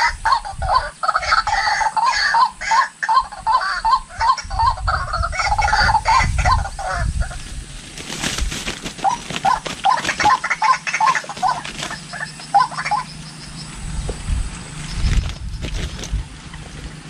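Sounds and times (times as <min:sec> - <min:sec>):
bird calling short rising notes: 0:09.0 - 0:15.4.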